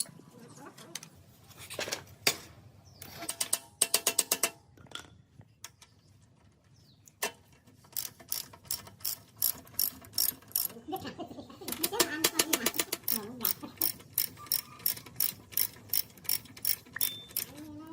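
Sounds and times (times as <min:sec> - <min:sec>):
ratcheting metal clicks: 0:07.1 - 0:10.8, 0:11.7 - 0:17.7.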